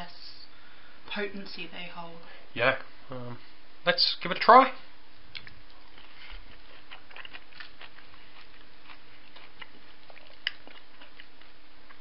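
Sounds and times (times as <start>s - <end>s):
people chewing fruit: 5.3s - 12.0s.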